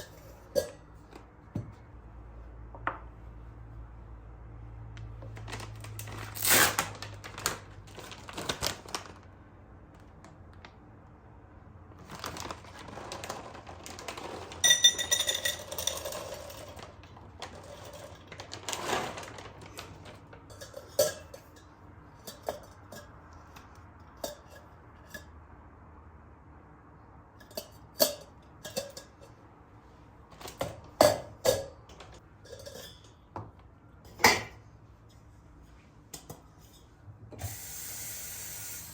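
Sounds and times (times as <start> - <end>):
dishes and utensils clinking: 14.6 - 16.8, 20.5 - 23.2, 27.4 - 29.4, 32.4 - 33.2.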